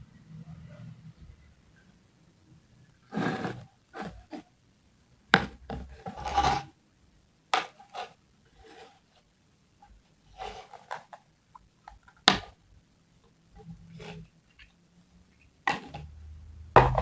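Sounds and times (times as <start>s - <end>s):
objects scraping and rustling: 3.0s - 4.5s, 5.7s - 6.8s, 7.6s - 11.3s, 13.6s - 14.8s.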